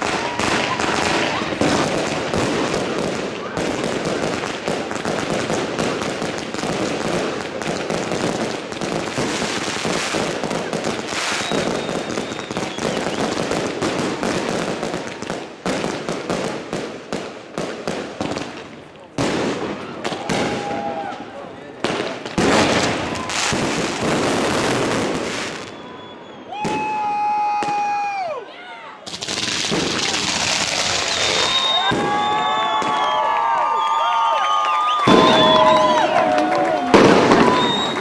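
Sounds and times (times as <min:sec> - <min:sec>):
fireworks crackling and popping: 0:00.0 - 0:28.4, 0:29.0 - 0:38.0
loud firework bang: 0:31.3 - 0:33.1, 0:35.0 - 0:38.0.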